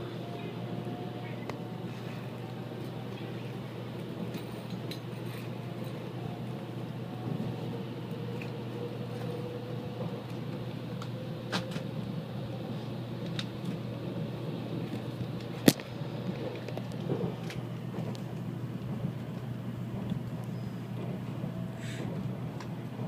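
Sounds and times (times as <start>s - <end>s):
train running noise: 0.0s - 23.0s.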